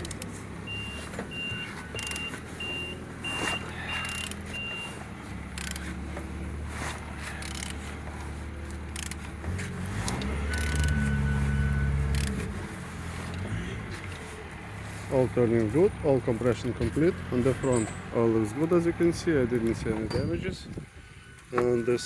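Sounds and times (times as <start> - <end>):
engine turned over by hand: 0.0 - 22.0
short high beeps: 21.2 - 22.0.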